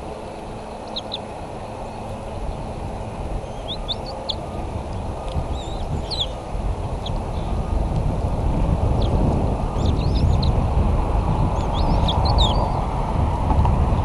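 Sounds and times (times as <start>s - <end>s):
low rushing background noise: 0.0s - 14.0s
bird chirps: 0.8s - 1.3s, 3.4s - 4.6s, 5.5s - 6.4s, 9.0s - 10.6s, 11.6s - 12.8s.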